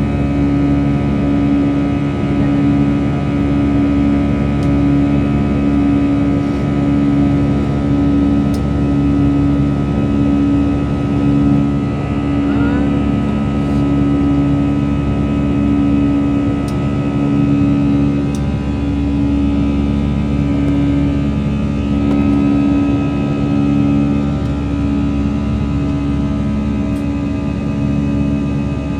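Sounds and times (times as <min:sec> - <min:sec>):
airliner engine drone: 0:00.0 - 0:28.9.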